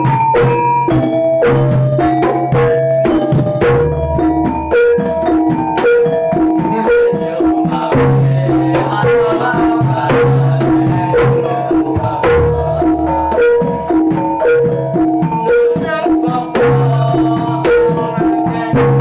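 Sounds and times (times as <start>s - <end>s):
interlocking tuned metal notes: 0.0s - 19.0s
sharp hand drum strokes: 0.0s - 19.0s.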